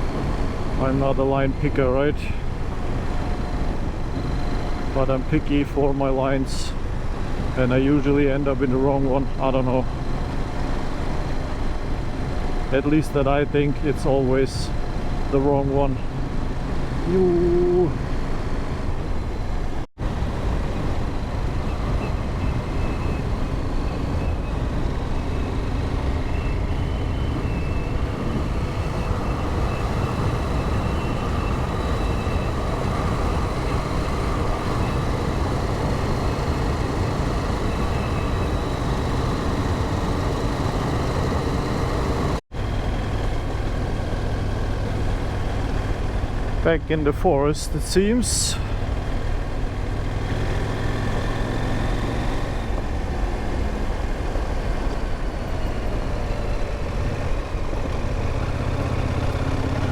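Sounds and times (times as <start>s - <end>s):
motorcycle engine running: 0.0s - 47.2s, 48.6s - 59.9s
wind noise: 16.0s - 47.0s.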